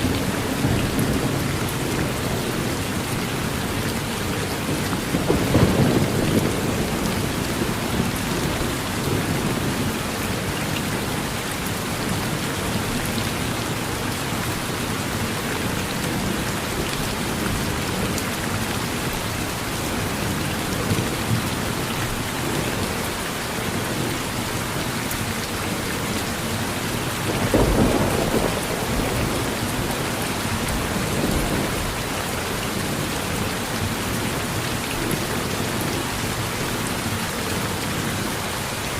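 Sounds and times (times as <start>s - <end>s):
thunder rumbling: 0.0s - 11.3s, 27.0s - 32.0s
heavy rain on a porch: 0.0s - 38.9s.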